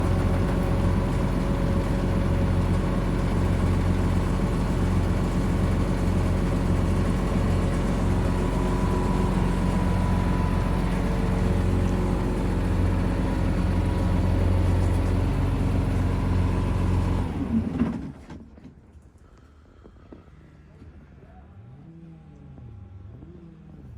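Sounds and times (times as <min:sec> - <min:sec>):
tractor diesel engine running: 0:00.0 - 0:18.4.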